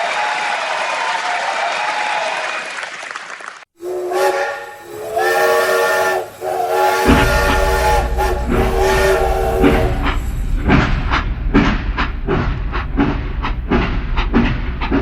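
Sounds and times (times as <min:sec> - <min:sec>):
applause: 0:00.0 - 0:03.7
train whistle blasts: 0:03.8 - 0:10.3.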